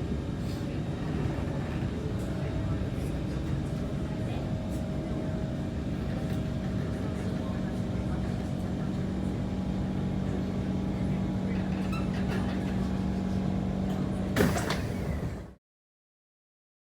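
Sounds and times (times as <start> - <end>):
train carriage electrical hum: 0.0 - 15.6
loud clunk and rattle: 14.4 - 15.5.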